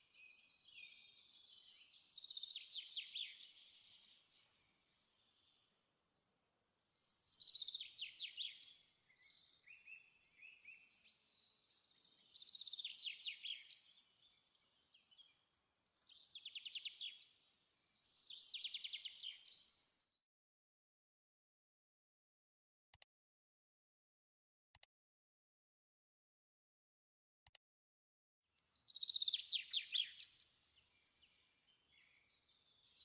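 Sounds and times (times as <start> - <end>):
bird singing trilled phrases: 0.1 - 5.8, 6.4 - 20.0, 28.5 - 33.0.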